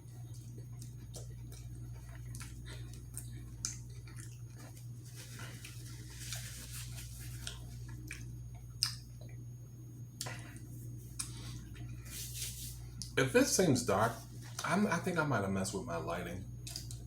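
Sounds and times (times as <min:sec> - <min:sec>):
steady low hum: 0:00.0 - 0:17.0
chewing with wet mouth clicks: 0:00.1 - 0:04.9, 0:07.4 - 0:09.4, 0:10.2 - 0:11.9, 0:16.6 - 0:17.0.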